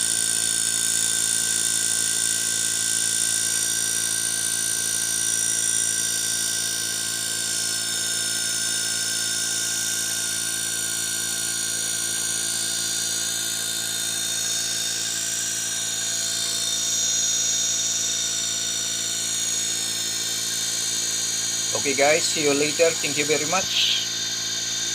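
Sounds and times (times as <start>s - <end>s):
high constant whine: 20.7s - 24.2s
air conditioner humming: 20.8s - 24.1s.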